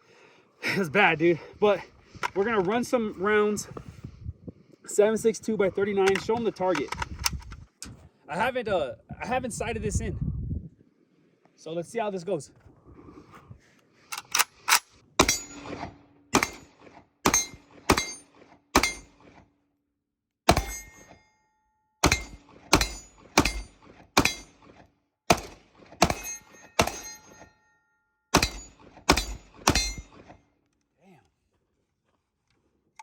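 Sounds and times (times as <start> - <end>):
rifle shots: 15.2 - 18.2, 18.8 - 19.2, 20.5 - 20.9, 22.0 - 27.2, 28.3 - 30.3.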